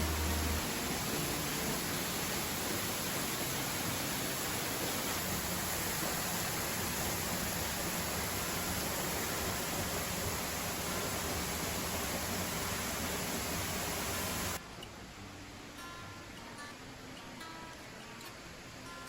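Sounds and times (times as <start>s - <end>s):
waterfall rushing: 0.0s - 14.6s.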